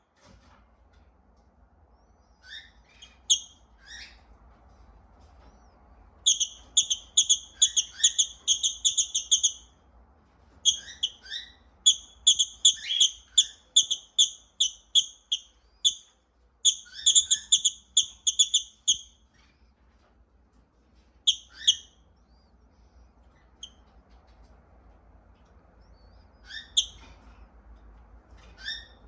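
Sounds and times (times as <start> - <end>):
lovebird shrill chirps: 2.5 - 4.0, 6.2 - 9.6, 10.6 - 16.0, 16.6 - 19.1, 21.3 - 21.9.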